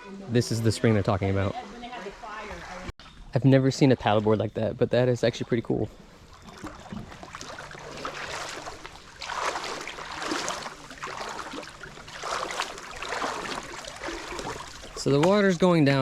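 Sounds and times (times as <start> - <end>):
shallow water sloshing: 5.9 - 15.6.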